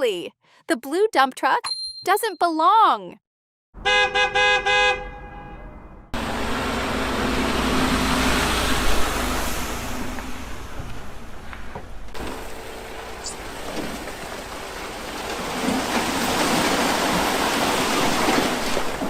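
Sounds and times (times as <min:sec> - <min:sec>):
vehicle horn tooting: 0:03.8 - 0:06.0
rushing noise with low rumble: 0:08.3 - 0:12.2.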